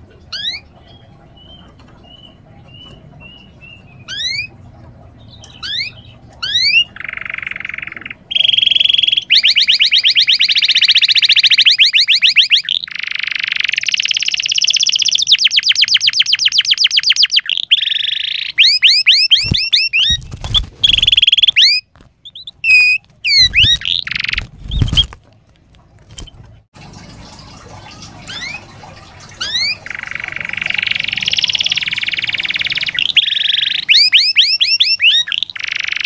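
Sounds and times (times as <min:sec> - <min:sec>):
canary singing trills: 0:00.0 - 0:25.2, 0:28.2 - 0:28.7, 0:29.4 - 0:36.0.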